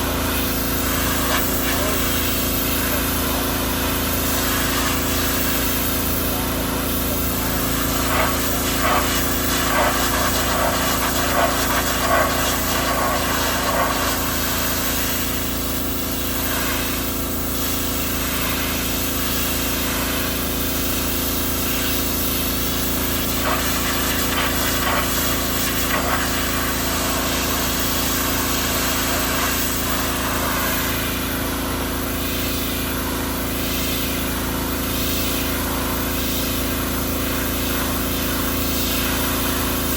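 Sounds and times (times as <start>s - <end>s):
pressure washer engine running: 0.0s - 39.9s
water spray hissing: 7.5s - 15.3s.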